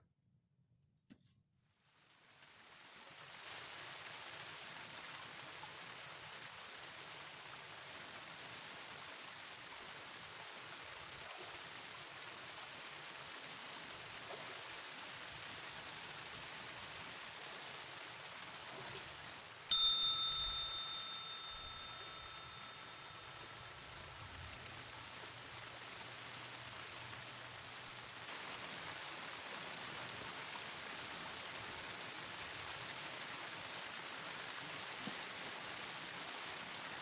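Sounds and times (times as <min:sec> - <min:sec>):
bell ding: 0:19.7 - 0:23.6.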